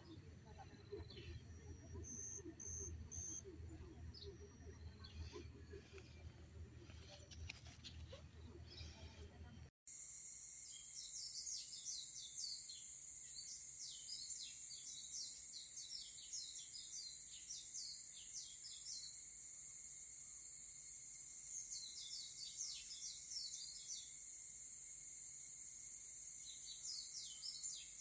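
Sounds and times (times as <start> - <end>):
small birds chirping: 0.0 - 9.4, 10.7 - 19.2, 21.5 - 24.2, 26.4 - 28.0.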